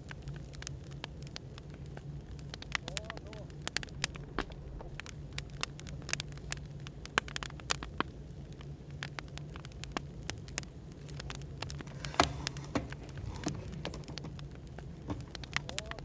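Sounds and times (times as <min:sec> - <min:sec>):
firewood crackling and snapping: 0:00.0 - 0:12.0
cafe background hum: 0:10.7 - 0:16.0.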